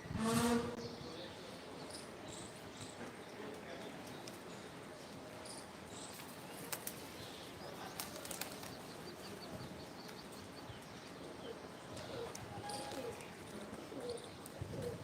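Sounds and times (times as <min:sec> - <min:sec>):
steady background hiss: 0:00.7 - 0:15.0
birds flapping wings: 0:06.1 - 0:07.2, 0:07.8 - 0:09.0.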